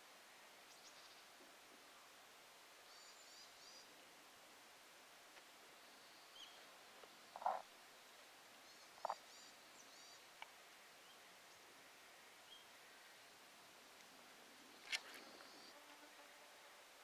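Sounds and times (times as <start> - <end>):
small birds chirping: 2.8 - 4.0, 5.8 - 13.5.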